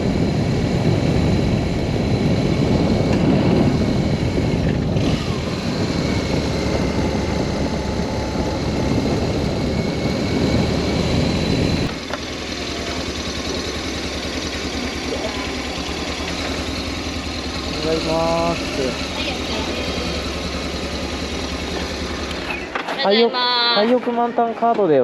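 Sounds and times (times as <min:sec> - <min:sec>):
rushing road noise: 0:00.0 - 0:24.2
motorcycle engine: 0:00.0 - 0:24.4.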